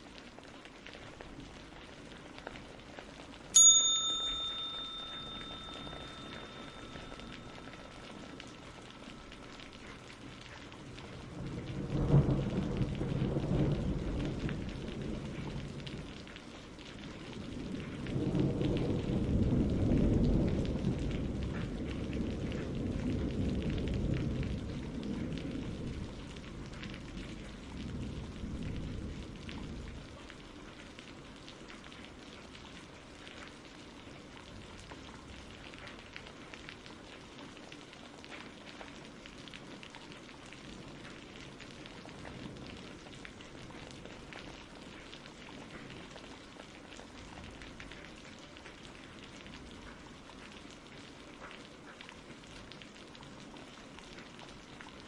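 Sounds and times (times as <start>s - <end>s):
steady rain: 0.0s - 55.0s
thunder rumble: 5.6s - 30.1s.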